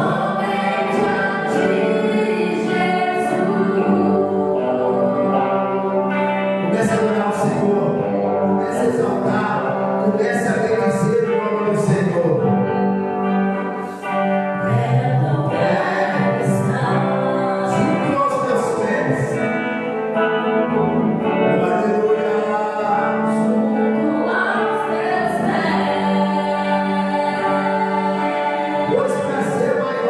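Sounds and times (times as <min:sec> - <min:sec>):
congregation singing gospel song: 0:00.0 - 0:30.0
sustained instrumental accompaniment: 0:00.0 - 0:30.0.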